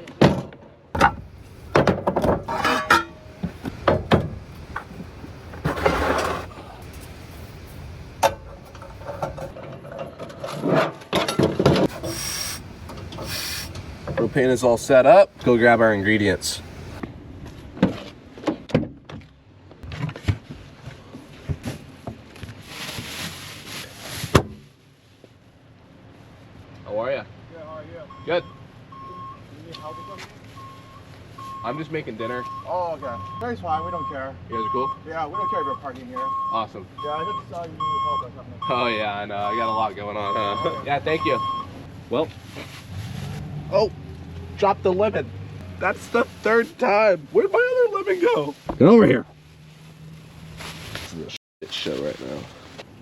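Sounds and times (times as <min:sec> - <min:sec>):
camping gear knocking and clinking: 0:00.3 - 0:07.4, 0:08.1 - 0:12.1
rattling clatter: 0:01.0 - 0:12.1
rustling: 0:21.2 - 0:25.3, 0:42.1 - 0:43.5, 0:45.9 - 0:53.0.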